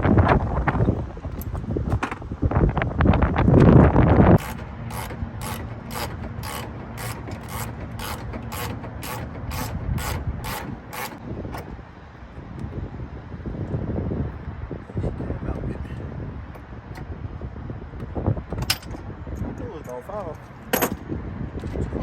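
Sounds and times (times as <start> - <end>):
ratchet wrench clicking: 4.4 - 11.2.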